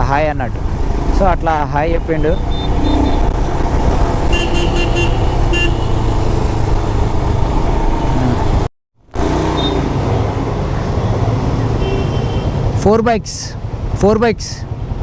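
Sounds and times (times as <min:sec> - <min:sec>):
traffic rumble: 0:00.0 - 0:15.0
vehicle horn tooting: 0:04.3 - 0:06.3, 0:11.8 - 0:12.6.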